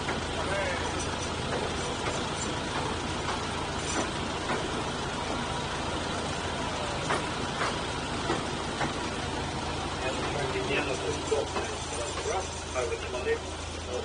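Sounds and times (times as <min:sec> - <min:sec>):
train rumbling in tunnel: 0:00.0 - 0:14.0
sharp clacks: 0:07.0 - 0:09.1.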